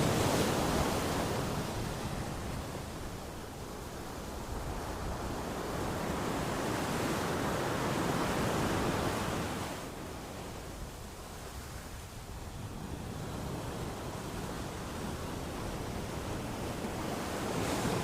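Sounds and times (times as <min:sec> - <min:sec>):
sea waves washing onto shore: 0:00.0 - 0:10.4.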